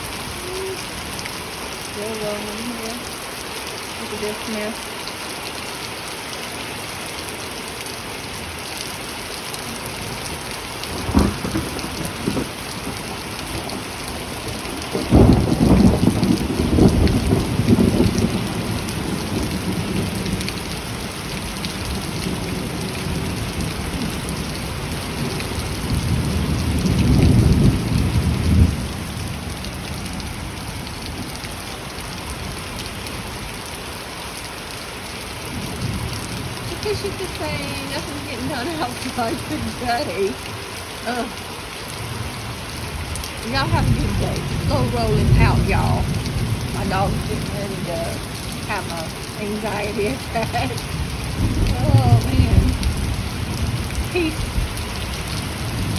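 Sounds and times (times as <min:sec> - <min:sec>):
heavy rain falling: 0:00.0 - 0:55.9
low rumbling thunder: 0:09.9 - 0:33.6, 0:35.4 - 0:55.9
sharp thunderclap: 0:10.9 - 0:20.7, 0:43.0 - 0:55.9.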